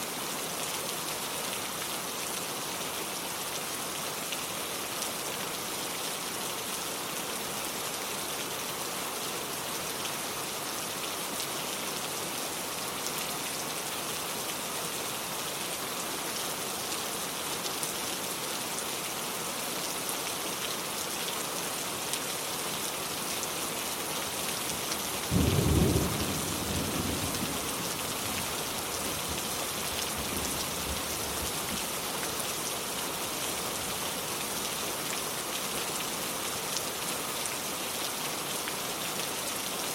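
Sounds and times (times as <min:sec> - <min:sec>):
rain pattering on hard surfaces: 0:24.2 - 0:33.9.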